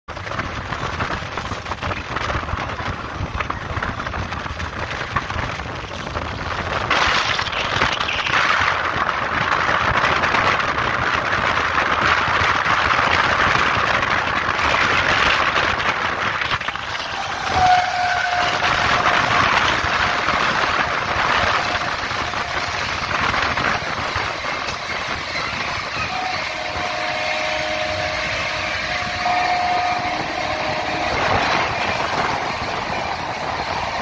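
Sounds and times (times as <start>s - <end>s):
train wheels rumbling on rail: 0.0s - 34.0s
wind rushing: 0.1s - 34.0s
train horn: 16.7s - 34.0s.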